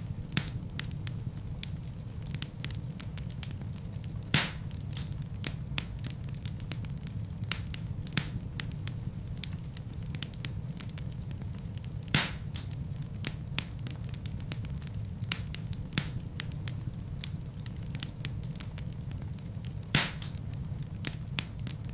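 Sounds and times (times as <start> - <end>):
fire crackling: 0.0 - 21.9
fire flames rumbling: 0.0 - 21.9
loud wood pops: 0.3 - 0.6, 4.3 - 5.1, 12.1 - 12.7, 19.9 - 20.4.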